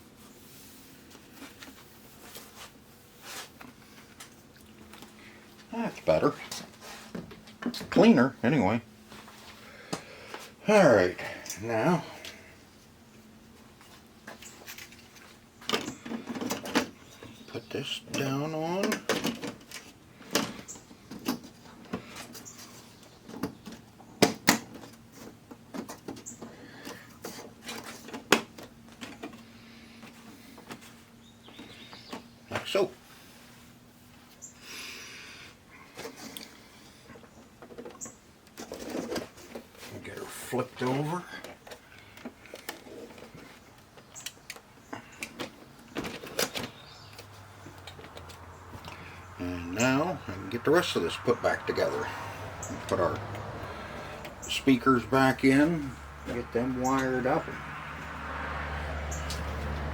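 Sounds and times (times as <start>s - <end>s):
clicks and knocks of handled parts: 13.8s - 17.5s, 18.1s - 29.4s, 36.0s - 39.9s, 41.4s - 49.1s.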